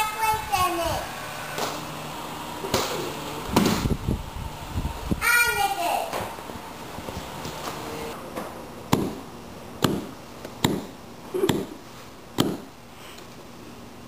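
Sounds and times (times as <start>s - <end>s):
sharp knocks with low thud: 8.9s - 9.2s, 9.8s - 10.9s.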